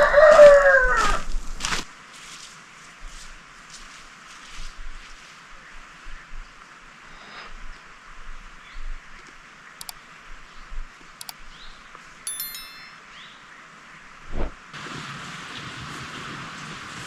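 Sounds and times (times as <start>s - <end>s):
steady outdoor hiss: 1.4s - 14.8s
sharp clicks: 9.8s - 10.0s, 11.2s - 11.5s
short metallic ding: 12.3s - 13.3s.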